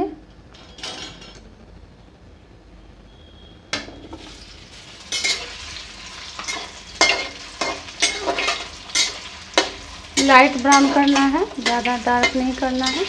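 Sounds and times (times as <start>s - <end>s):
dumplings sizzling in oil: 3.6s - 13.0s
spatula scraping pan: 5.1s - 13.0s.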